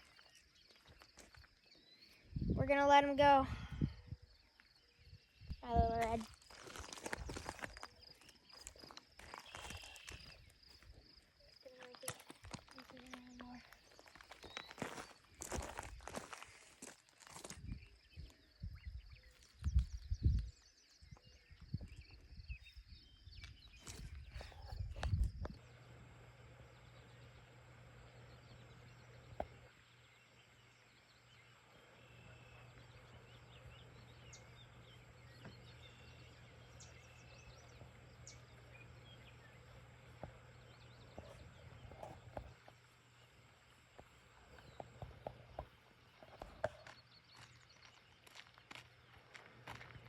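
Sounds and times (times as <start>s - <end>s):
low steady hum: 17.6s - 50.0s.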